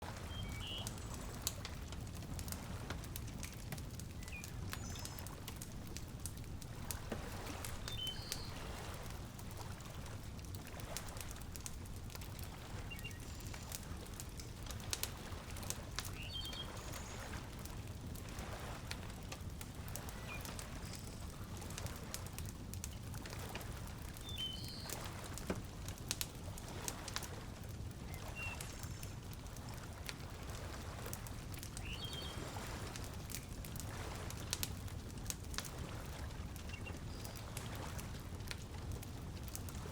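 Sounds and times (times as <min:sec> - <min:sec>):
fireplace crackling and popping: 0:00.0 - 0:39.9
low rumble of water: 0:00.0 - 0:39.9.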